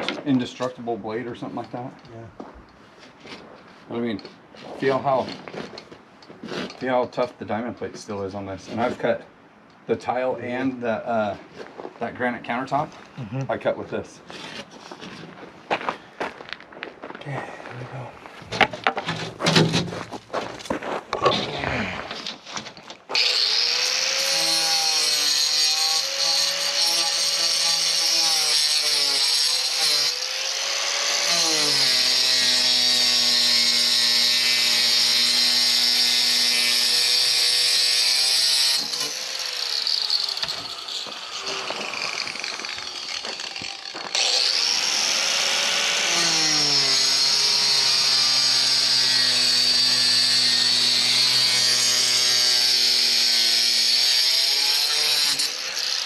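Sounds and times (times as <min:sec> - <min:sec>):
power saw cutting concrete: 0:23.1 - 0:56.0.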